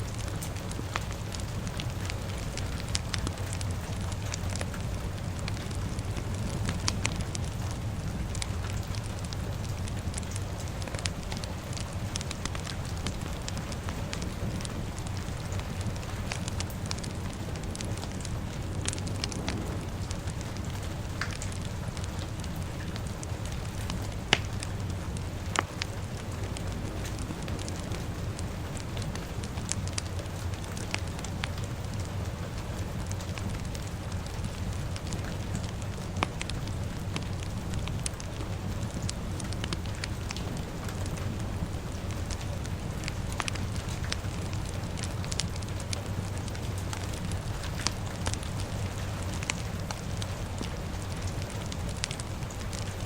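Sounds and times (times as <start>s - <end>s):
fire crackling and popping: 0.0s - 53.0s
low rumble of rain: 0.0s - 53.0s.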